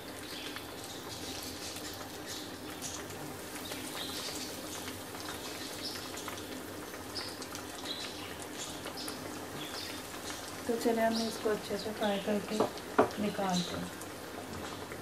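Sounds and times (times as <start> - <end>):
oil sizzling with crackles: 0.0 - 15.0.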